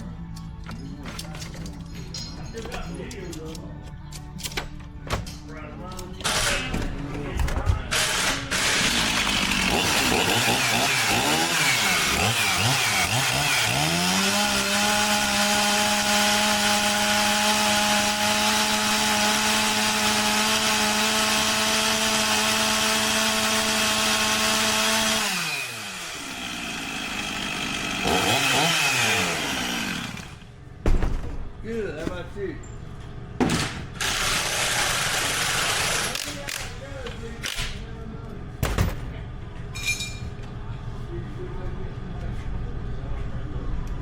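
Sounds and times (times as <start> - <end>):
chainsaw engine revving: 7.9 - 30.4, 34.0 - 36.3.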